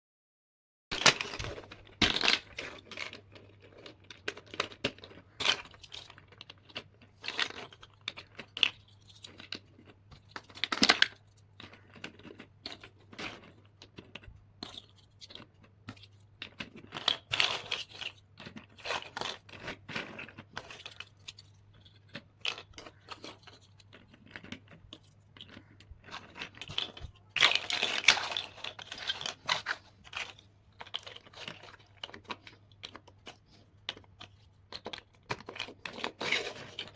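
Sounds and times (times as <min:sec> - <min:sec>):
plastic blocks clicking: 0:01.0 - 0:36.9.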